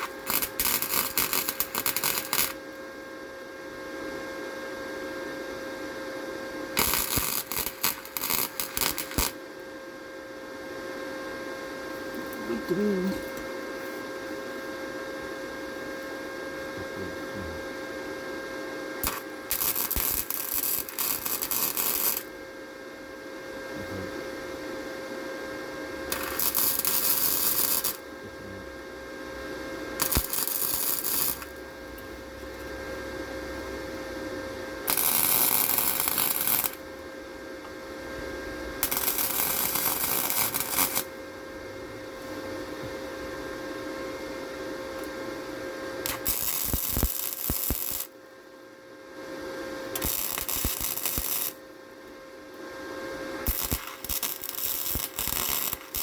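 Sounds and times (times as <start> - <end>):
electric welding bursts: 0.0 - 2.6, 6.8 - 9.4, 19.0 - 22.3, 26.1 - 28.6, 30.0 - 31.7, 34.8 - 36.8, 38.8 - 41.1, 46.0 - 48.2, 49.9 - 51.6, 53.4 - 56.0
steady hum: 0.0 - 56.0.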